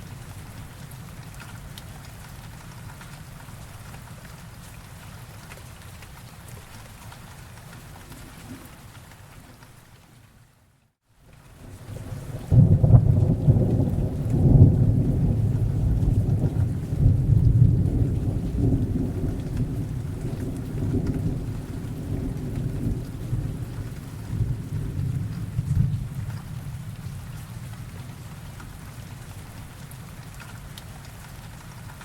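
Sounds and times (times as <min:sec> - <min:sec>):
rain falling: 0:00.0 - 0:32.0
thunder rolling: 0:11.9 - 0:27.3.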